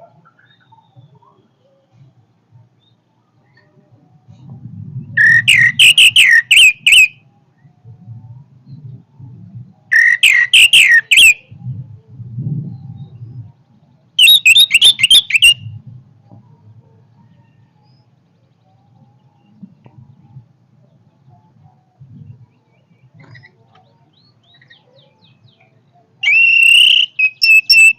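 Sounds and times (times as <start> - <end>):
thrush singing: 5.2 - 7.1, 9.9 - 11.4, 26.2 - 27.9.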